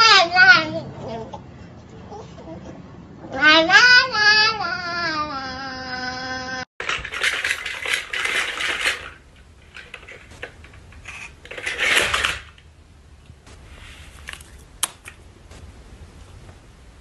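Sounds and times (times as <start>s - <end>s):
toy dinosaur rasping clatter: 6.8s - 12.6s
sharp clicks: 14.2s - 15.7s.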